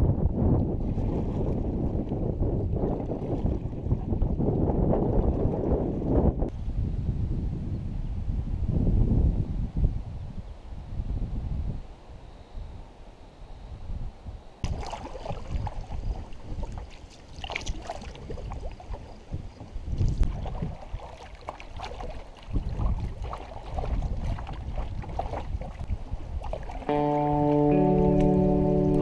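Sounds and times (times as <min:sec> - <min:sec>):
wind buffeting microphone: 0:00.0 - 0:12.8, 0:13.6 - 0:29.0
water splashing against canoe hull: 0:00.6 - 0:02.2, 0:14.6 - 0:28.4.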